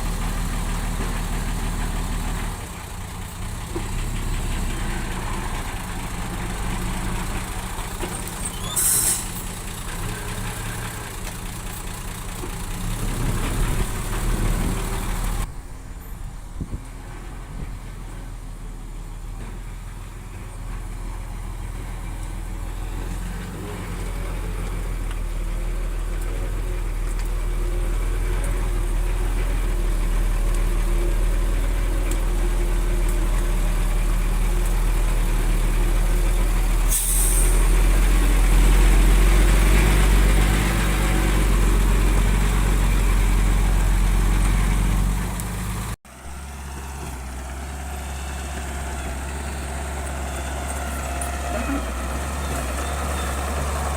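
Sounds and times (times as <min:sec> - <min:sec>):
heavy diesel engine working: 0:00.0 - 0:53.9
short sharp hiss: 0:08.6 - 0:09.4, 0:36.9 - 0:37.6.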